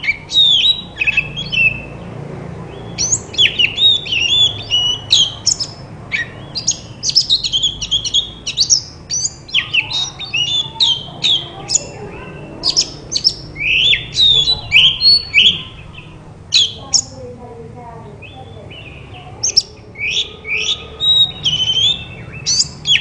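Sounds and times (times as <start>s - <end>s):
magpie-robin whistled song: 0.0s - 2.0s, 2.7s - 17.2s, 18.2s - 23.0s
bird harsh chattering: 0.0s - 2.1s, 2.7s - 17.4s, 18.0s - 23.0s.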